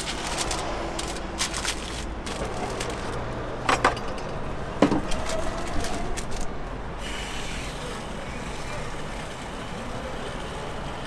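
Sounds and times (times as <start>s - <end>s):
scattered clicks and knocks: 0.0s - 6.5s
steady background hum: 0.0s - 7.0s.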